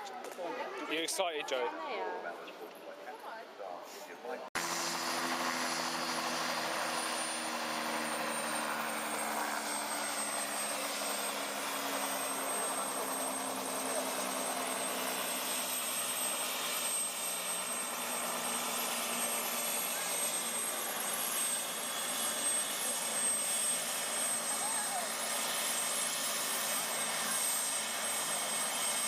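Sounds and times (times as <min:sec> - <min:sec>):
helicopter drone: 0:04.6 - 0:29.0
high turbine whine: 0:04.6 - 0:29.0.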